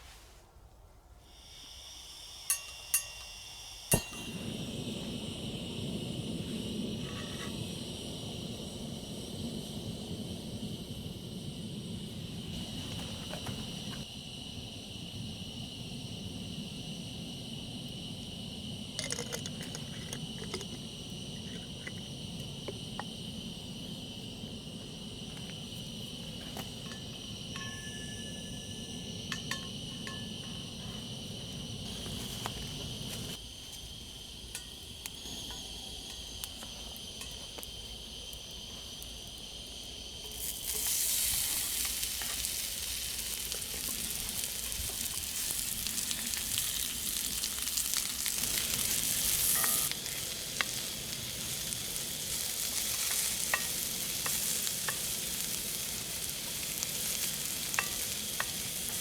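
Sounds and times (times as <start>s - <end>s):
insects chirring: 1.2s - 59.0s
food sizzling in a hot pan: 39.8s - 59.0s.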